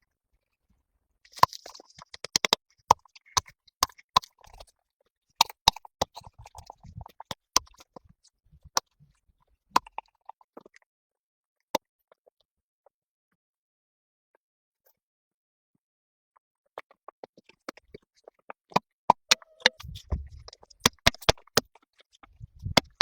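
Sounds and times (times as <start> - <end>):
sharp clicks and knocks: 19.1 - 21.7, 22.3 - 23.0.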